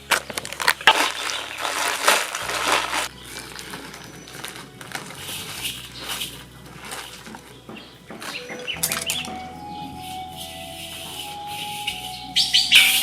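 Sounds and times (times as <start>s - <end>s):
leaves crunching and rustling: 0.0s - 9.4s.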